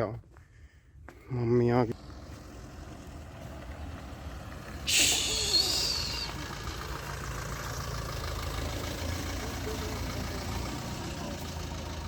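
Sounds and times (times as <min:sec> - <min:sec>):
vehicle engine idling: 0:00.3 - 0:12.0
loud air hiss: 0:04.9 - 0:06.2.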